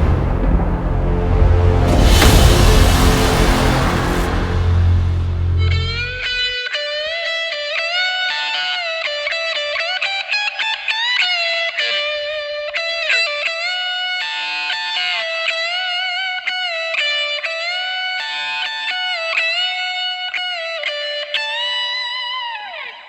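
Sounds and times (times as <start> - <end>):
electric guitar slow melody: 5.6 - 23.0.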